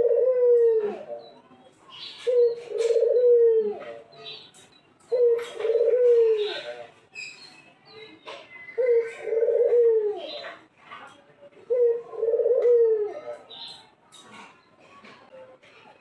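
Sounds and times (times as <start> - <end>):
dove cooing: 0.0 - 1.4, 2.0 - 4.3, 5.0 - 6.9, 8.8 - 10.6, 11.7 - 13.5.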